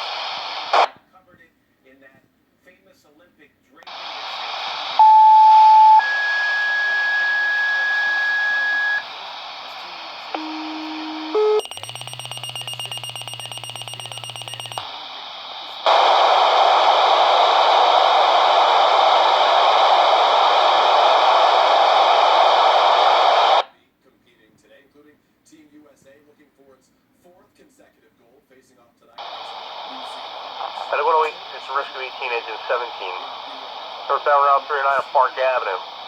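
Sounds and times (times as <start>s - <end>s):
radio paging tones: 0.0s - 0.9s, 3.9s - 23.6s, 29.2s - 36.0s
radio hiss: 0.0s - 1.0s, 3.8s - 23.7s, 29.2s - 36.0s.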